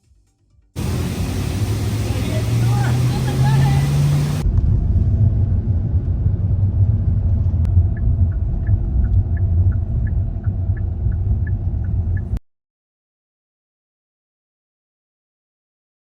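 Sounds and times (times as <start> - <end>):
vehicle rumbling: 0.8 - 12.4.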